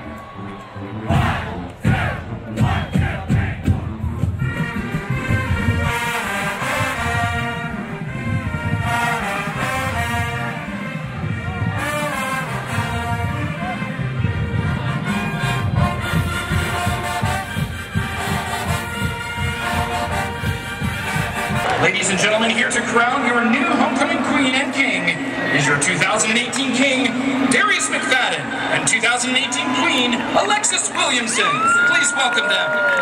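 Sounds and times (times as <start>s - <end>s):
brass horns playing melody: 1.0s - 21.8s
steady drum beat: 1.1s - 21.8s.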